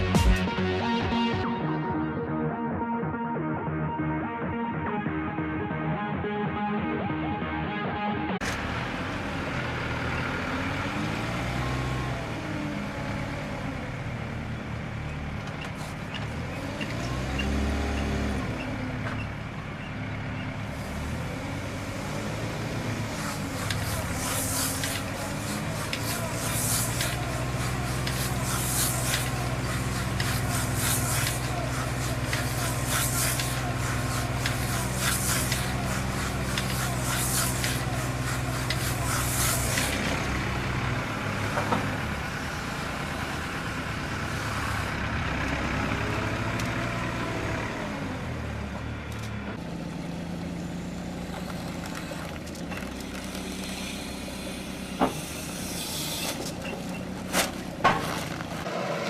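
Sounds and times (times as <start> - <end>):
farm machine engine running: 8.4 - 58.7
short hissing bursts: 23.0 - 40.1, 53.4 - 56.6.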